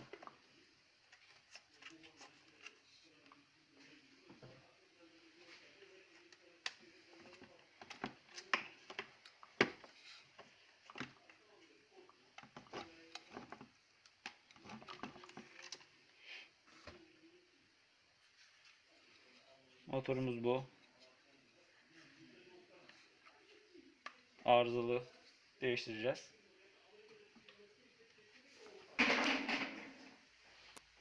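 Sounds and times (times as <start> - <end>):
plastic parts clicking and knocking: 6.3 - 11.4, 12.3 - 16.0.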